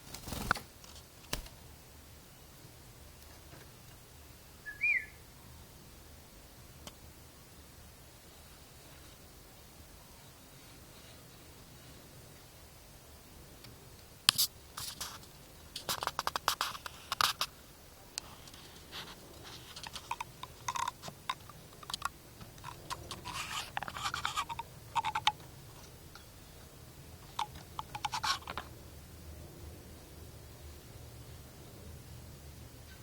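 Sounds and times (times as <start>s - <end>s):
canary pecking and scratching: 14.3s - 17.6s, 18.2s - 26.3s, 27.2s - 28.7s.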